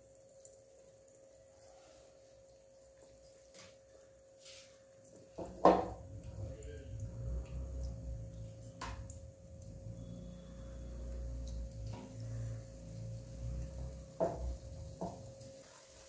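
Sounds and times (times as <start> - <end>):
low rumble: 6.0 - 14.1
food sizzling in oil: 8.8 - 16.0.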